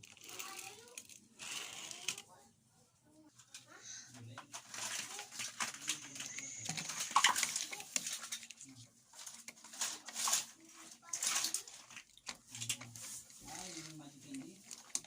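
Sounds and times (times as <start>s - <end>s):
toy vehicles rustling and scraping: 0.0s - 2.5s, 3.2s - 15.0s.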